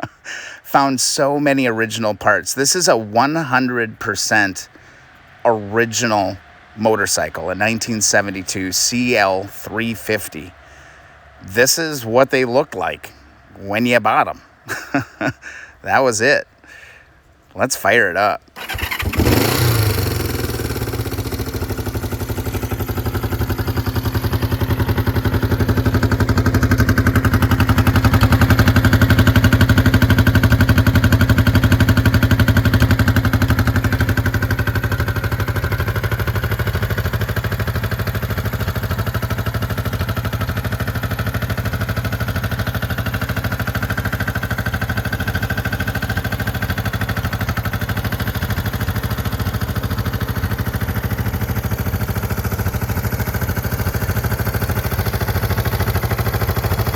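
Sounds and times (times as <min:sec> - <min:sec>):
motorcycle engine idling: 0:18.5 - 0:56.9.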